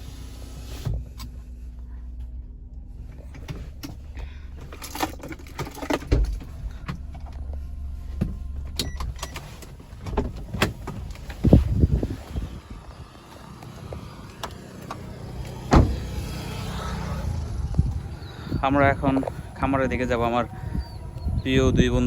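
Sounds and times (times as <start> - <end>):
car engine humming: 0.0 - 22.0
loud thumps: 15.6 - 16.4.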